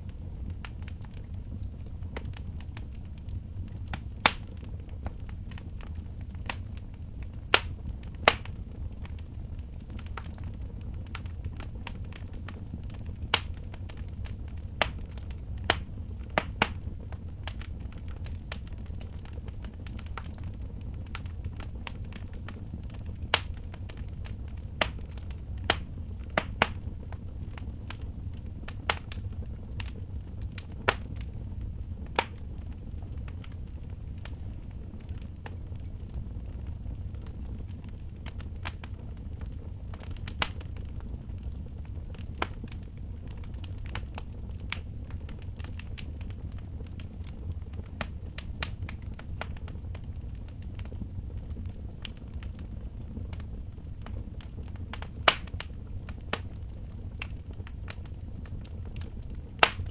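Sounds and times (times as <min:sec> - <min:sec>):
fire low rumble: 0:00.0 - 0:59.9
wood fire crackling: 0:00.0 - 0:59.9
sharp pops and snaps: 0:03.9 - 0:05.2, 0:07.5 - 0:09.2, 0:12.9 - 0:26.9, 0:27.5 - 0:31.3, 0:32.0 - 0:32.4, 0:40.0 - 0:40.7, 0:54.1 - 0:56.4, 0:58.9 - 0:59.9.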